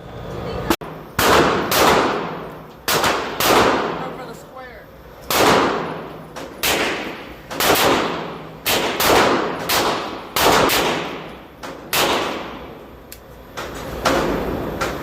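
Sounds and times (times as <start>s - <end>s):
rifle shots with ringing echo: 1.2s - 4.2s, 5.3s - 12.8s.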